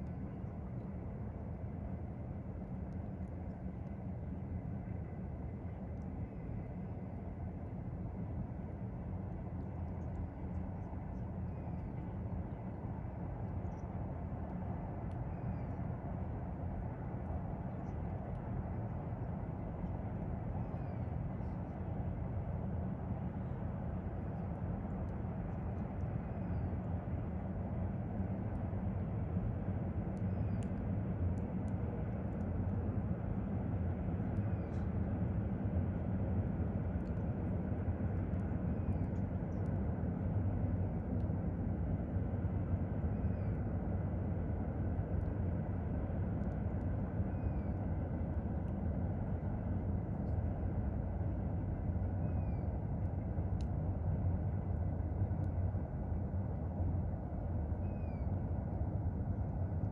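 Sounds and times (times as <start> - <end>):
faint high chirps and ticks: 8.6 - 22.2, 23.2 - 36.0, 36.7 - 56.2, 57.7 - 58.6.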